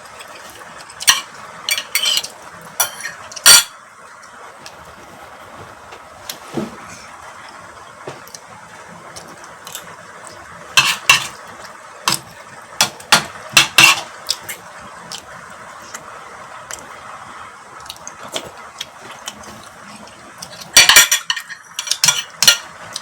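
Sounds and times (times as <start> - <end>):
cutlery clinking against dish: 0.2 - 3.8, 10.8 - 11.4, 12.8 - 14.5, 20.4 - 23.0.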